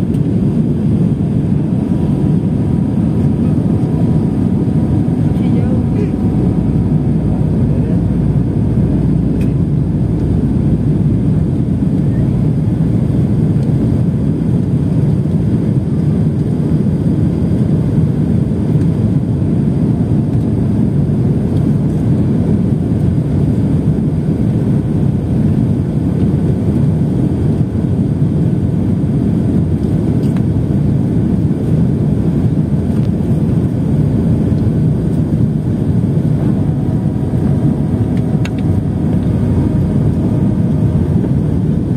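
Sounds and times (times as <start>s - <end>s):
rushing air: 0.0s - 13.9s
airliner engines rumbling: 0.0s - 41.9s.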